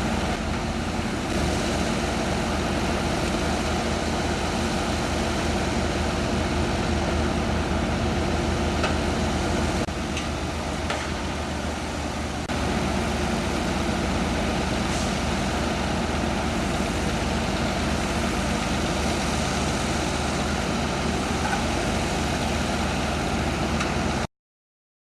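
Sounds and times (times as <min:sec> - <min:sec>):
heavy engine humming: 0:00.0 - 0:24.3.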